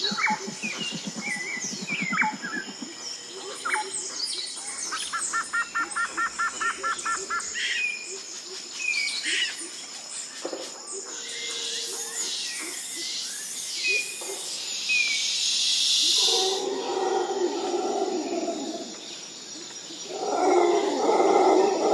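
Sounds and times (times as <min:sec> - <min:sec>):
fast low pulsing bird call: 0:00.0 - 0:04.0
birds whistling and chirping: 0:00.0 - 0:08.0.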